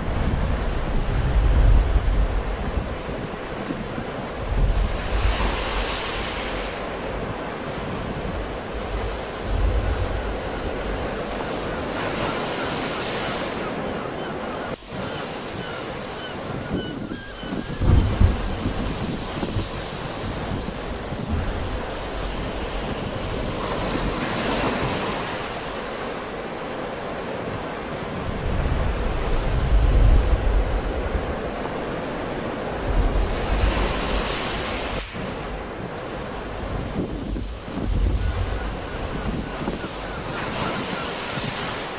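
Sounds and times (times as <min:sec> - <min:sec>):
sea waves washing onto shore: 0:00.0 - 0:41.9
wind buffeting microphone: 0:00.0 - 0:41.9.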